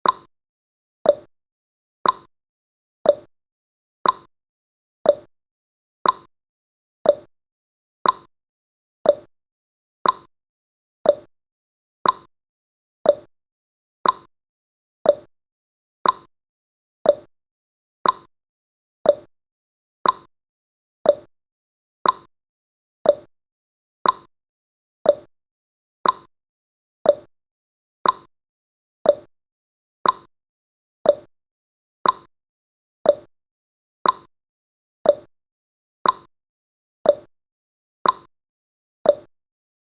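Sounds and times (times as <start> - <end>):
clock-like timer ticks: 0.0 - 0.3, 1.0 - 1.3, 2.0 - 2.3, 3.0 - 3.3, 4.0 - 4.3, 5.0 - 5.3, 6.0 - 6.3, 7.0 - 7.3, 8.0 - 8.3, 9.0 - 9.3, 10.0 - 10.3, 11.0 - 11.3, 12.0 - 12.3, 13.0 - 13.3, 14.0 - 14.3, 15.0 - 15.3, 16.0 - 16.3, 17.0 - 17.3, 18.0 - 18.3, 19.0 - 19.3, 20.0 - 20.3, 21.0 - 21.3, 22.0 - 22.3, 23.0 - 23.3, 24.0 - 24.3, 25.0 - 25.3, 26.0 - 26.3, 27.0 - 27.3, 28.0 - 28.3, 29.0 - 29.3, 30.0 - 30.3, 31.0 - 31.3, 32.0 - 32.3, 33.0 - 33.3, 34.0 - 34.3, 35.0 - 35.3, 36.0 - 36.3, 37.0 - 37.3, 38.0 - 38.3, 39.0 - 39.3.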